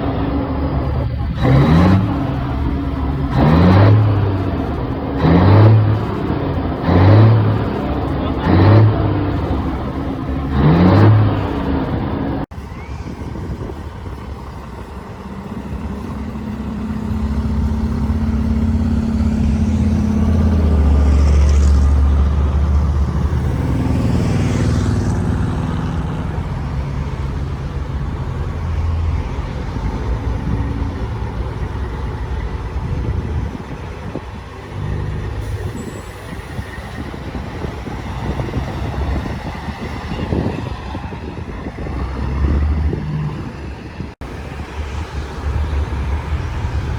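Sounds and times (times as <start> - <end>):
heavy truck engines rumbling: 0.0 - 46.9.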